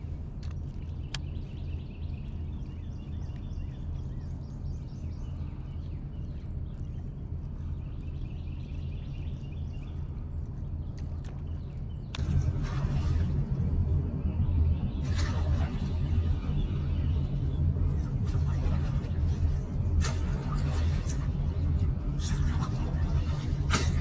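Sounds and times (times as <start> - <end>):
small birds chirping: 0.0 - 13.2
steady low hum: 0.0 - 24.0.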